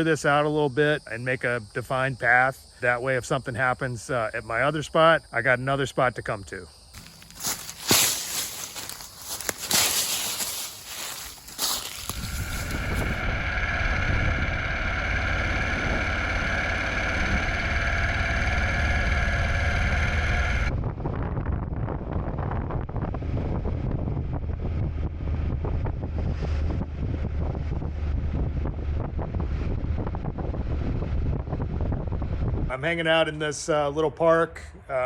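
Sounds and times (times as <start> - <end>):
high-pitched multi-tone hum: 7.0 - 21.0
low rumble: 7.0 - 32.7
wind buffeting microphone: 8.2 - 18.4, 20.6 - 32.7.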